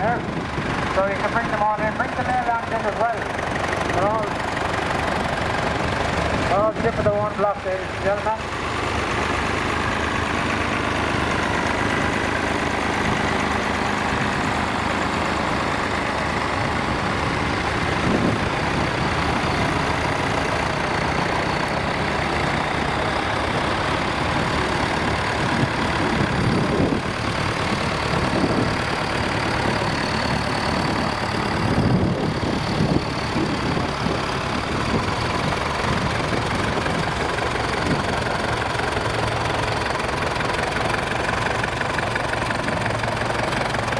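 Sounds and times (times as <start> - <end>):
tractor engines running: 0.0 - 43.9.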